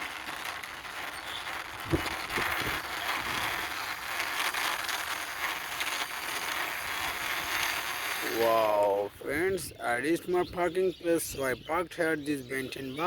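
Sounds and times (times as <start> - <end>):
toy bus wheels rolling: 0.0 - 9.1.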